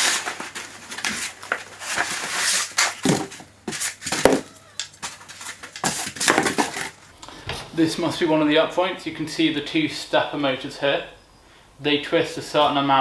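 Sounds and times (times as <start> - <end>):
packaging rustling and scraping: 0.0 - 7.1.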